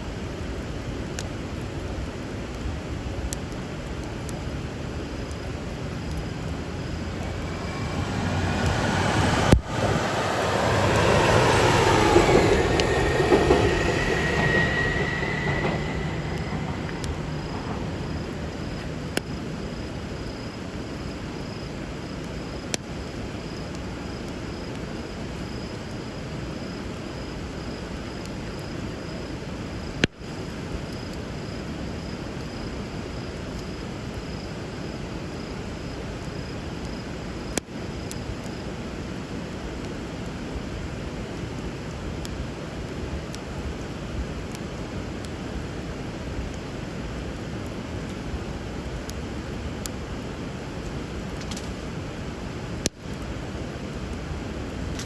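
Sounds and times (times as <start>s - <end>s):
crackling bonfire: 0.1s - 32.5s, 34.8s - 55.0s
passing vehicle whine: 4.4s - 20.2s
river water flowing: 4.7s - 19.8s.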